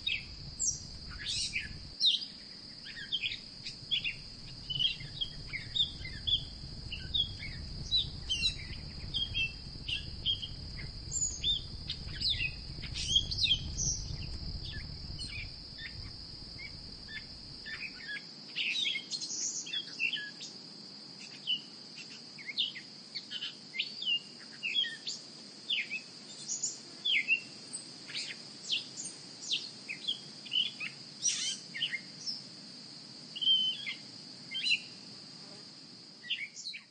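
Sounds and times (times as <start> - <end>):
small birds chirping: 0.0 - 20.2, 36.2 - 36.9
high insect drone: 0.0 - 36.9
low rumble: 3.7 - 17.6.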